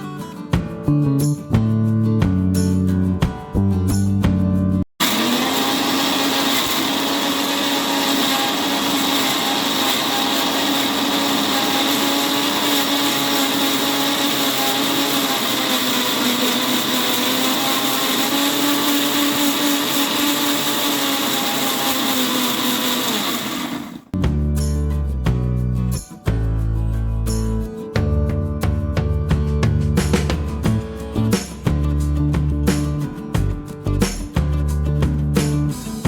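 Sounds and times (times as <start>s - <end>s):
electric blender running: 5.0s - 24.2s.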